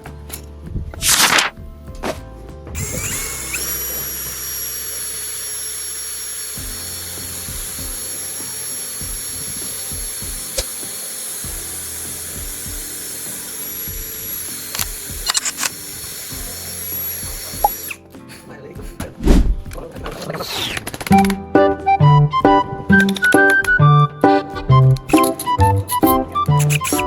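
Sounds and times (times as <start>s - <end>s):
power drill spinning: 2.8s - 18.1s, 24.7s - 27.0s
sharp clicks: 20.6s - 21.4s, 22.9s - 27.0s.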